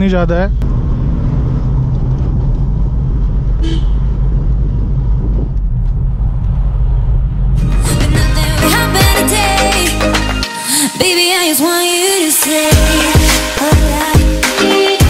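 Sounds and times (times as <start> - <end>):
car engine droning uphill: 0.0 - 9.2
music: 7.6 - 15.0.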